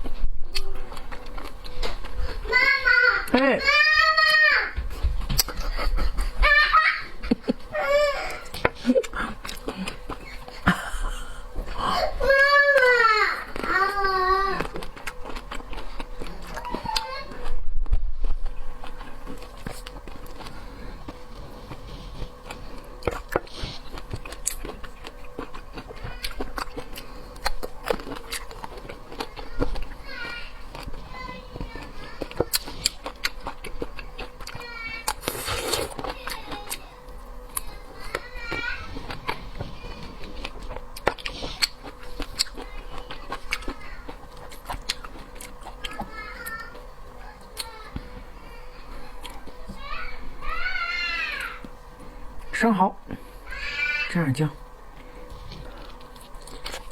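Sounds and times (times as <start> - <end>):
faint steady hum: 0.0 - 56.9
chewing clicks and smacks: 14.6 - 17.4, 22.4 - 30.0, 31.6 - 38.3, 39.0 - 46.8.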